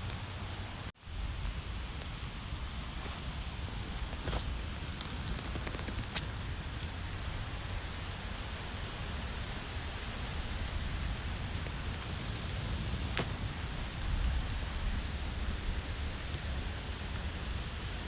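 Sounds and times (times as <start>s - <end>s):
rain hissing: 0.0s - 18.0s
raindrops ticking: 1.1s - 12.4s.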